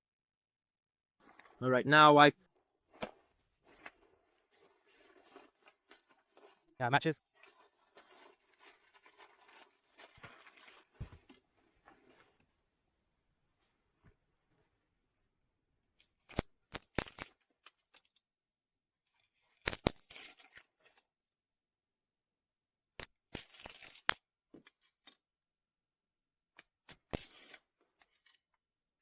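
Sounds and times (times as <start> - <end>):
match striking matchbox: 16.0 - 18.2, 19.5 - 21.0, 23.0 - 24.2.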